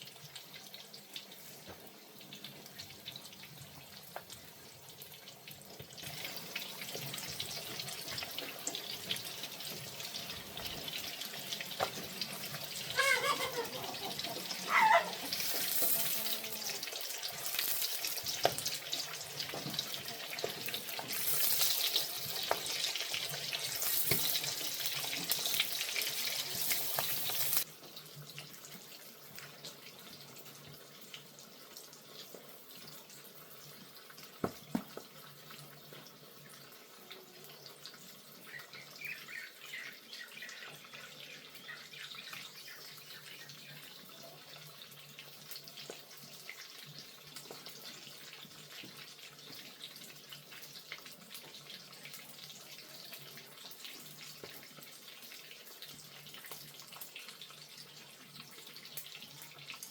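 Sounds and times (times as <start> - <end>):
water dripping and trickling: 0.0 - 59.9
running water pouring: 5.5 - 27.7.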